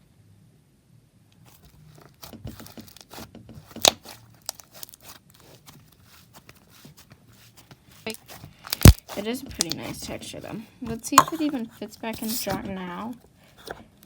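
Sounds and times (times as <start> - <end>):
loud slime pop: 8.7 - 9.2
slime sticky clicks and pops: 8.7 - 9.8.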